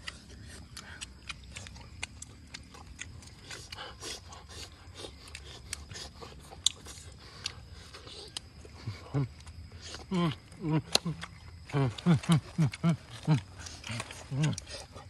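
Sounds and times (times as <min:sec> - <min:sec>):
person chewing and crunching: 0:00.0 - 0:15.0.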